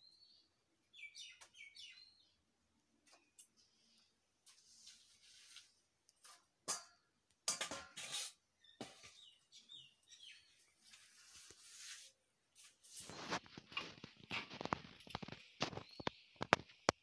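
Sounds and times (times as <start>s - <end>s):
faint bird chirps: 0.0s - 2.4s, 8.6s - 11.0s, 14.8s - 17.0s
rustling close by: 3.7s - 6.5s, 10.6s - 16.8s.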